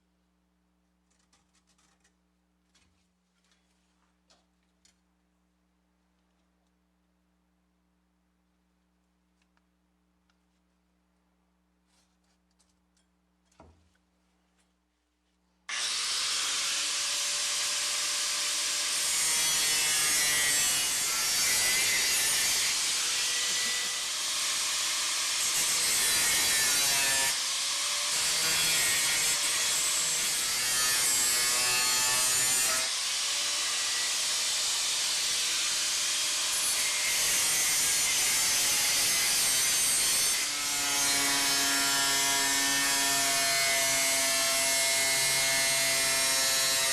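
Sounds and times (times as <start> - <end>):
power tool grinding metal: 15.7 - 46.9.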